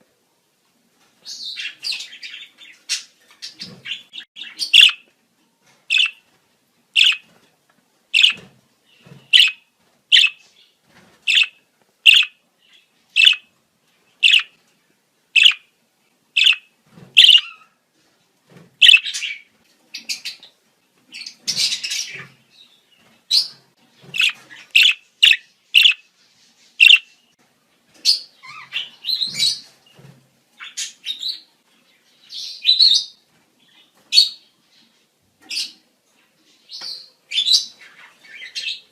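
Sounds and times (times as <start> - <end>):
budgerigars chirping and warbling: 1.3 - 5.0, 5.9 - 6.2, 7.0 - 7.3, 8.2 - 10.6, 11.2 - 13.5, 14.2 - 14.6, 15.4 - 15.7, 16.4 - 17.7, 18.8 - 20.5, 21.1 - 22.4, 23.3 - 26.1, 26.8 - 27.2, 28.0 - 29.7.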